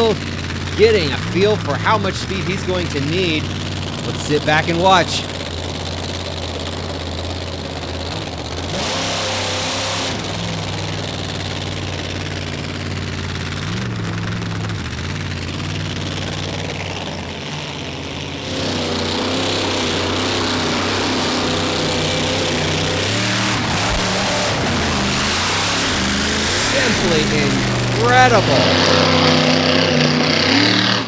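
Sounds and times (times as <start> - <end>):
monster truck engine revving: 0.0 - 31.0
rush of noise: 18.5 - 29.6.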